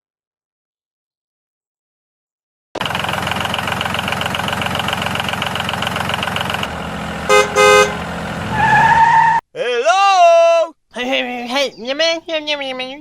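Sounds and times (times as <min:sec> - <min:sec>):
small engine running: 0:02.8 - 0:08.5
short loud horn beeps: 0:07.3 - 0:08.0.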